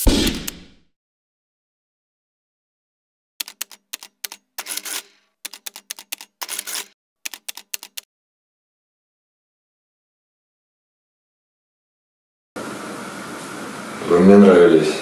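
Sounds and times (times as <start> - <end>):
rapid sharp clicks and clacks: 3.4 - 8.1.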